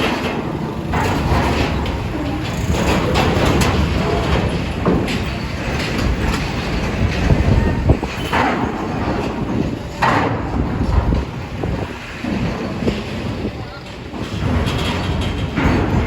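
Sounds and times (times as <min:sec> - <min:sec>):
metal clanks and knocks: 0:00.0 - 0:16.0
vehicles rumbling over steel ramp: 0:00.0 - 0:16.0.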